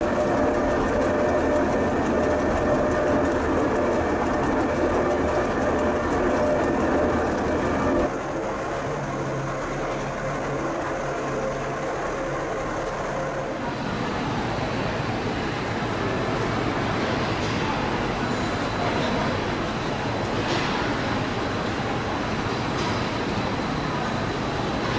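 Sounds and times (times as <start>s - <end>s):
railcar rumbling and rattling: 0.0s - 24.9s.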